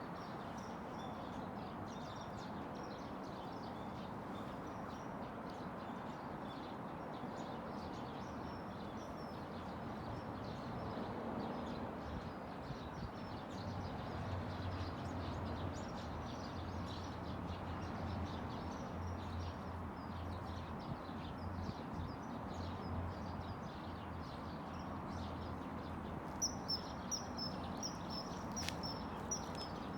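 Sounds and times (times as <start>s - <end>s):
small birds chirping: 18.8s - 29.9s
river water flowing: 26.1s - 29.9s.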